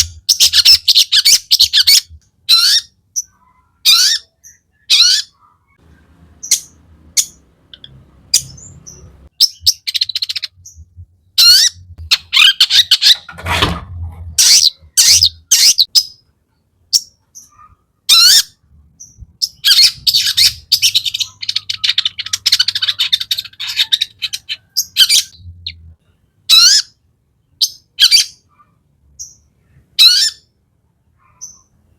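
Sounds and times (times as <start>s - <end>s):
bird chattering rapidly: 6.4s - 13.3s, 19.4s - 25.8s.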